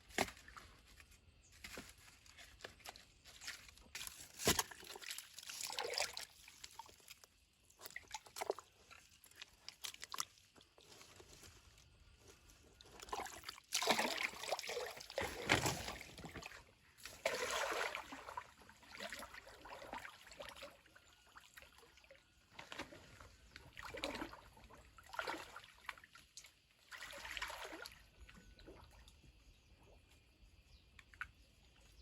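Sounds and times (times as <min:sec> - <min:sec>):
water splashing: 0:13.1 - 0:20.7.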